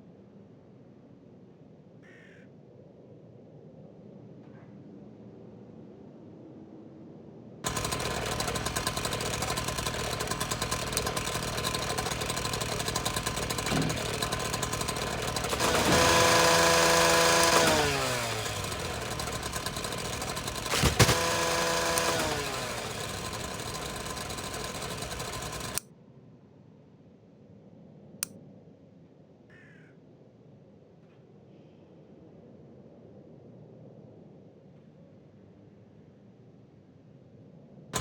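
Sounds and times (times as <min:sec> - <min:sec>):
small motor buzzing rattle: 0:07.7 - 0:25.8.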